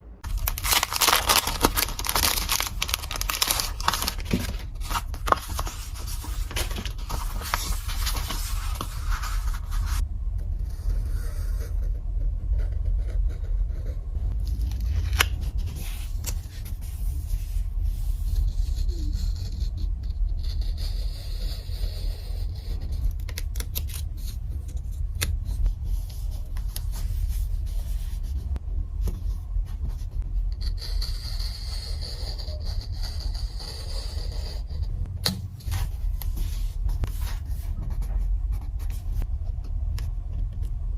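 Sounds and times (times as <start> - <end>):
low handling rumble: 0.0 - 18.7, 34.6 - 40.9
paper scraping and rustling: 0.2 - 10.0, 35.6 - 39.0.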